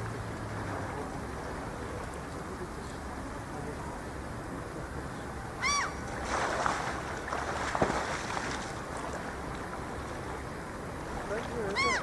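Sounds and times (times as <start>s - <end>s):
water splashing and sloshing: 0.0s - 3.7s, 6.0s - 12.0s
gull call: 5.6s - 6.0s, 11.7s - 12.0s.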